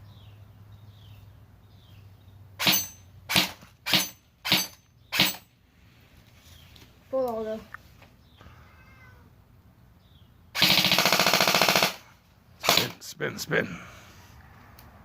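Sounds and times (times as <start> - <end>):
airsoft rifle shots: 2.6 - 5.5, 10.6 - 13.0.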